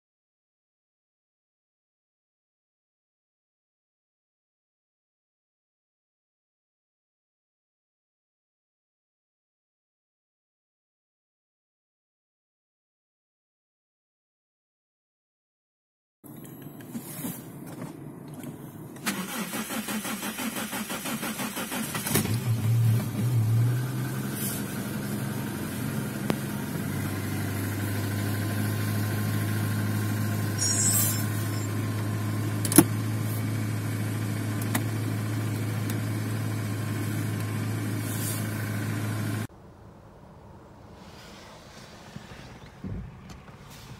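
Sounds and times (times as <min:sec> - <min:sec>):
car engine revving and idling: 0:16.3 - 0:39.5
car starter cranking: 0:18.3 - 0:23.3.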